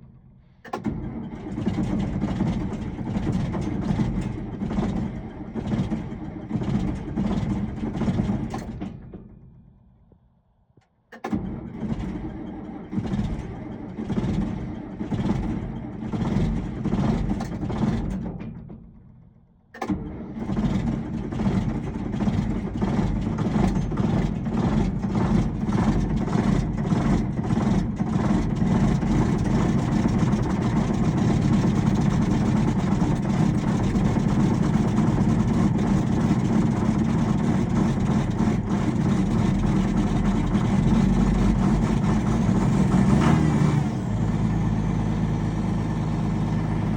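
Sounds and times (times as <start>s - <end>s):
diesel tractor engine idling: 21.0s - 46.9s.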